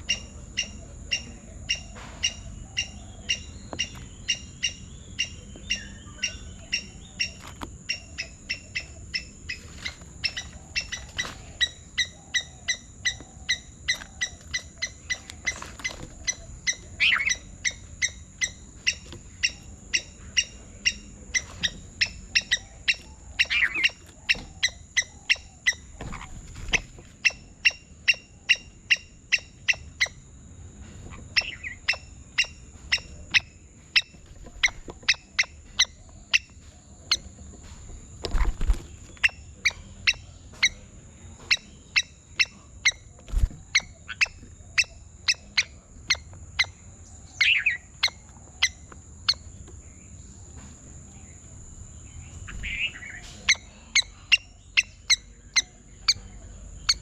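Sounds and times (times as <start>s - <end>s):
bird giving sharp calls: 0.0s - 30.2s.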